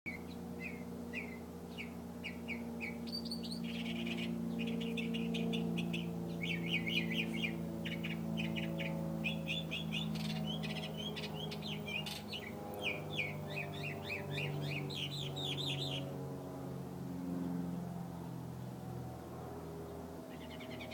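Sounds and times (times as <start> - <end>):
songbird singing trills: 0.1 - 16.1, 20.3 - 20.9
low steady hum: 0.1 - 20.9.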